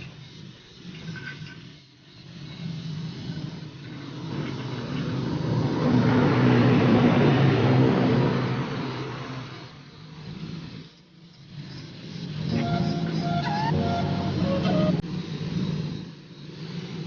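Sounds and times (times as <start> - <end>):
vehicle engine passing by: 4.3 - 9.7.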